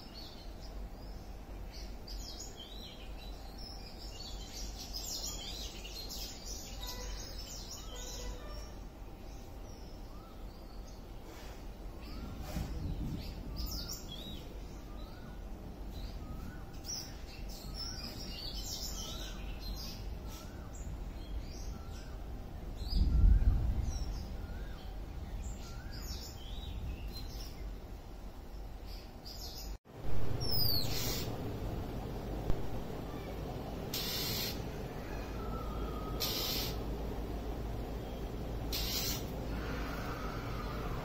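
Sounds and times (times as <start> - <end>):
birds chirping: 0.0 - 41.0
low rumble: 29.9 - 36.2.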